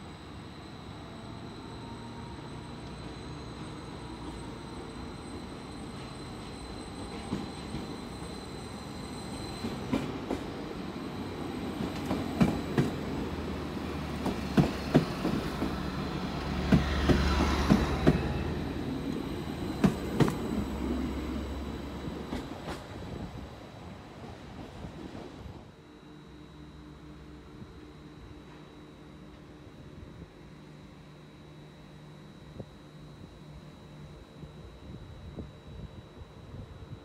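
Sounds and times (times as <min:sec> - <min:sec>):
train running rumble: 0:00.9 - 0:25.7.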